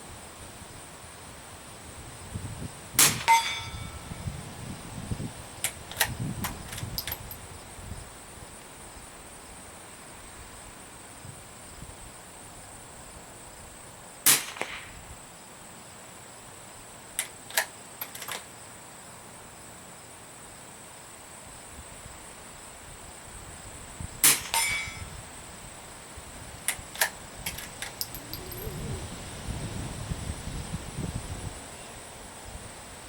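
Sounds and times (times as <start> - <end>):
rifle shots: 3.0 - 3.8, 14.3 - 14.9, 24.2 - 25.0
metallic bolt clicks: 5.6 - 7.4, 17.2 - 18.5, 26.7 - 28.7.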